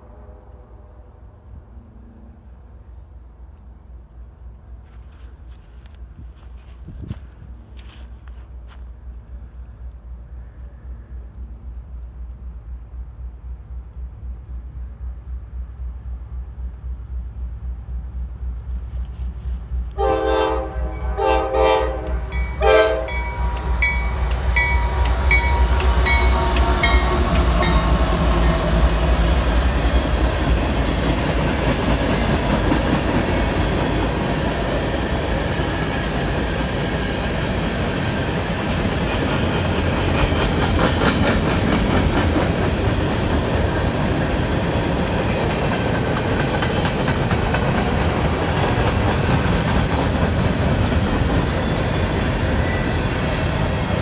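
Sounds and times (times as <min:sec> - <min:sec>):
locomotive engines rumbling: 0:00.0 - 0:54.0
train wheels clickety-clack: 0:11.4 - 0:21.0, 0:21.9 - 0:54.0
locomotive horn blasts: 0:19.9 - 0:28.9.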